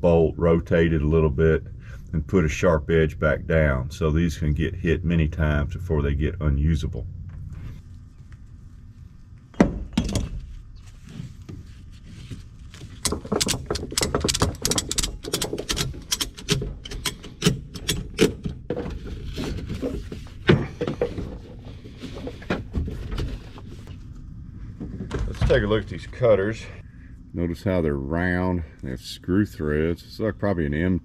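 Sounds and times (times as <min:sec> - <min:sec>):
rapid clicking and clattering: 0:12.9 - 0:18.8.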